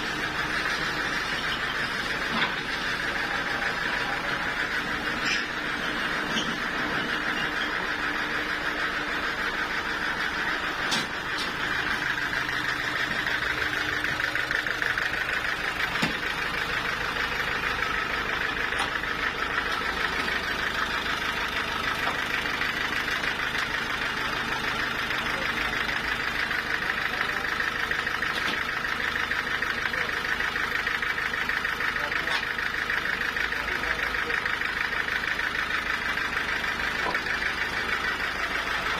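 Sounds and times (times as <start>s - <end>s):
engine droning: 0.0s - 38.9s.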